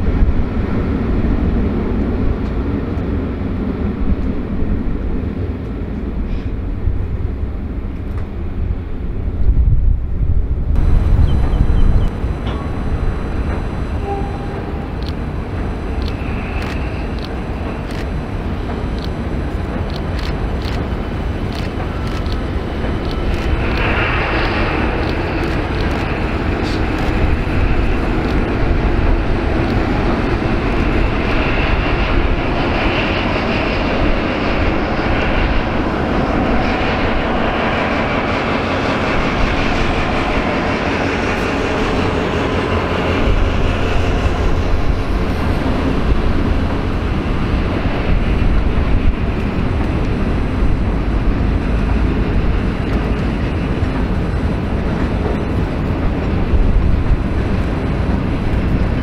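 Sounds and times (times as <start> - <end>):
freight train passing: 0.0 - 59.0.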